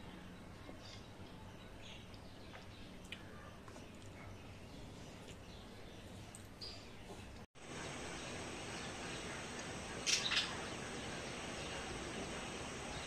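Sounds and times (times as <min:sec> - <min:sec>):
steady background hiss: 0:07.6 - 0:13.0
bird chirps: 0:07.8 - 0:12.3.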